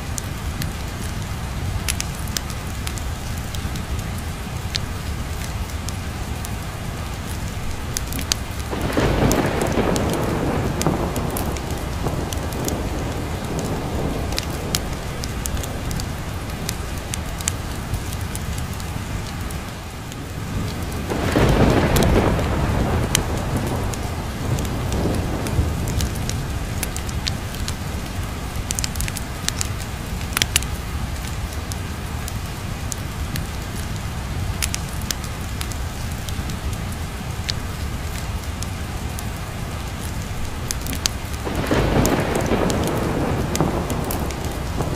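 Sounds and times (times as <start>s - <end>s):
steady rain: 0.0s - 44.9s
thunder rumble: 0.1s - 19.5s, 20.1s - 31.8s, 40.4s - 44.9s.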